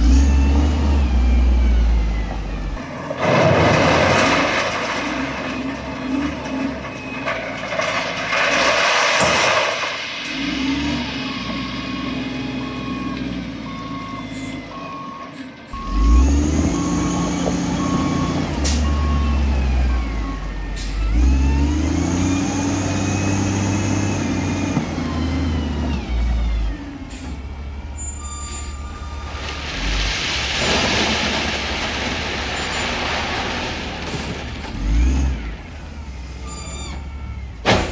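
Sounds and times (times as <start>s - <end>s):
diesel engine revving: 0.0s - 2.8s, 15.7s - 37.9s
reversing alarm beeping: 12.0s - 22.6s.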